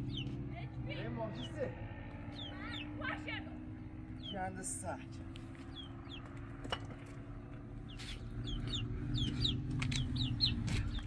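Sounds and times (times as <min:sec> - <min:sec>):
chicks peeping: 0:00.0 - 0:00.3, 0:05.6 - 0:06.3, 0:07.9 - 0:11.0.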